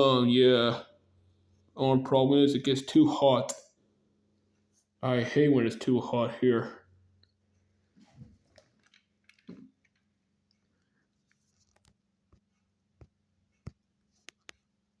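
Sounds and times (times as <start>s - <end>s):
toy figures clicking and tapping: 8.6s - 10.6s.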